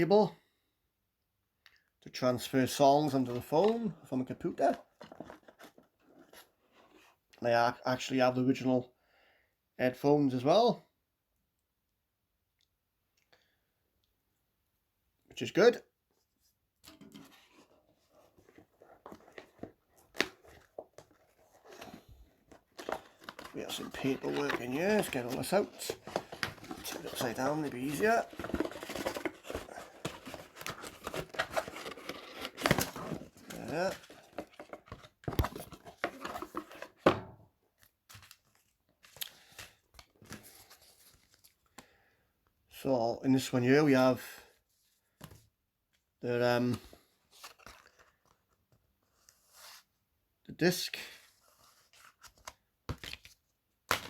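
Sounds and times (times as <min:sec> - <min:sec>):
paper rustling and crinkling: 0:04.6 - 0:07.1, 0:16.9 - 0:37.1, 0:37.8 - 0:41.8, 0:46.8 - 0:49.9
hands handling packaging: 0:16.9 - 0:37.2, 0:37.8 - 0:41.8, 0:46.7 - 0:48.6.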